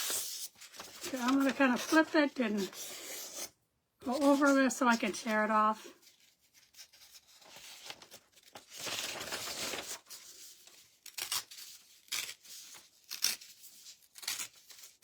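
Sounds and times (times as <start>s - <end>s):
paper rustling: 0.0s - 11.0s
paper tearing: 6.6s - 10.4s.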